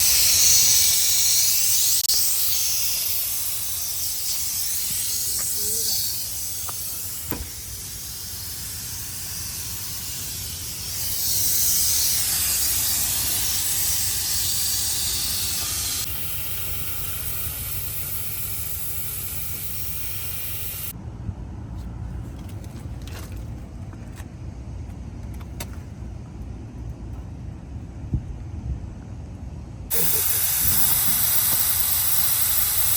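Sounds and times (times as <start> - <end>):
pressurised gas hissing from pipes: 0.0 - 21.0, 29.9 - 32.9.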